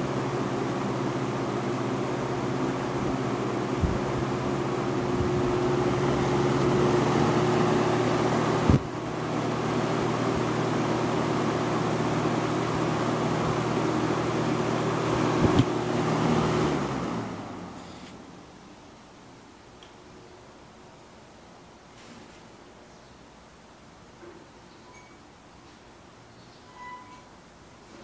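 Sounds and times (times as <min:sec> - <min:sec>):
rush of air from fan blades: 0:00.0 - 0:18.5
box fan motor humming: 0:00.0 - 0:18.9.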